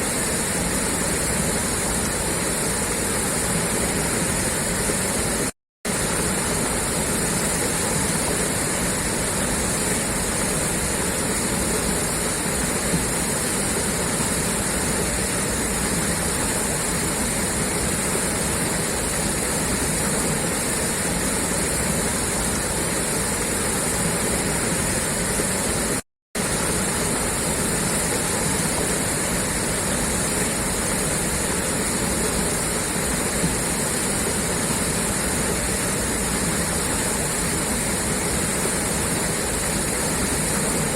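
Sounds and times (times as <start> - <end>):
water gushing from pipe: 0.0 - 40.9.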